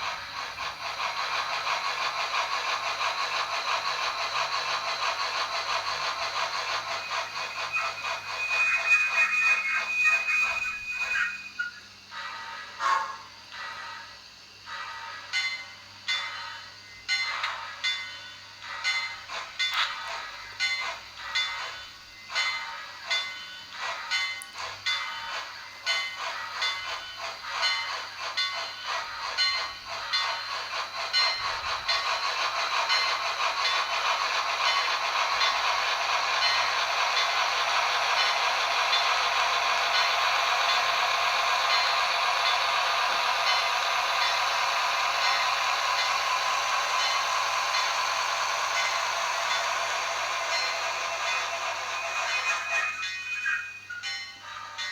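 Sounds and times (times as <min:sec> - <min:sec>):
steam hissing: 0:00.0 - 0:15.3, 0:15.9 - 0:54.8
model steam locomotive chuffing: 0:00.0 - 0:54.9.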